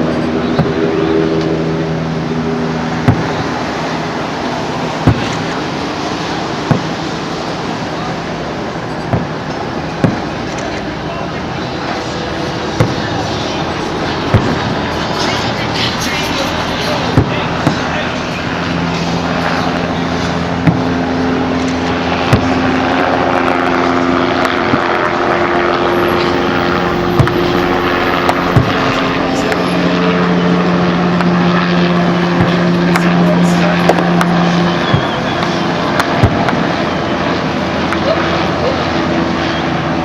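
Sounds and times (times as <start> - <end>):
mechanical drone: 0.0 - 40.0
fireworks bursting: 12.4 - 18.9.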